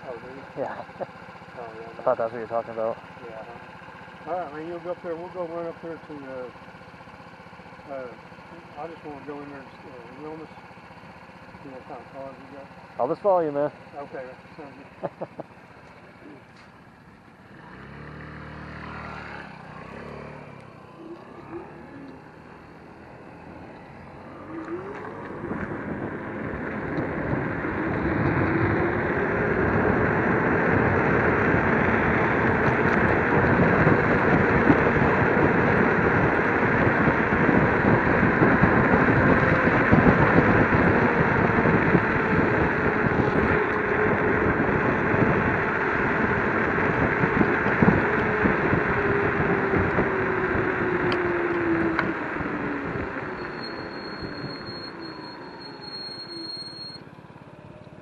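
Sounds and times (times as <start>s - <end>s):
wind and road noise: 0.0s - 58.0s
electric motor whine: 17.8s - 35.7s.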